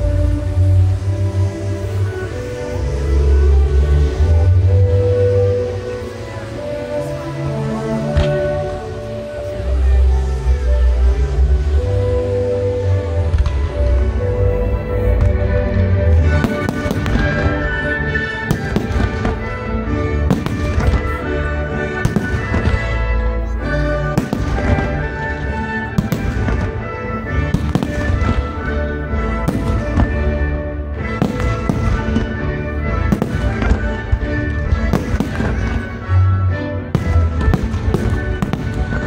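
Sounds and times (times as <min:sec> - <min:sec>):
music: 0:00.0 - 0:39.0
fireworks bangs: 0:16.2 - 0:21.3, 0:22.0 - 0:23.0, 0:24.0 - 0:28.8, 0:29.4 - 0:36.3, 0:36.9 - 0:39.0.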